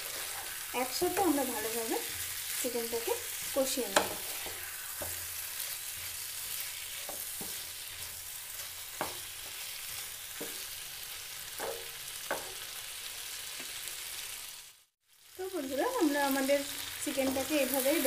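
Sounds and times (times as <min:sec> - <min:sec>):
spatula scraping a pan: 0:00.0 - 0:12.7
food sizzling in oil: 0:00.0 - 0:18.0.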